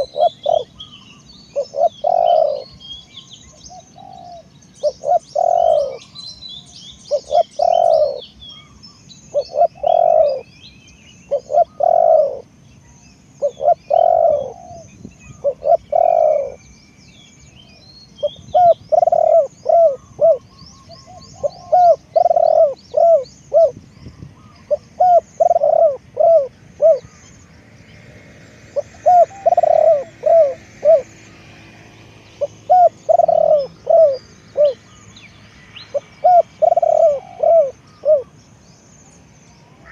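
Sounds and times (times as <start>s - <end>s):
dove cooing: 0.0s - 2.8s, 3.6s - 6.1s, 7.1s - 10.5s, 11.3s - 12.6s, 13.4s - 16.6s, 18.2s - 23.8s, 24.4s - 27.3s, 28.7s - 31.3s, 32.4s - 34.9s, 35.9s - 38.4s
small birds chirping faintly: 0.0s - 39.9s.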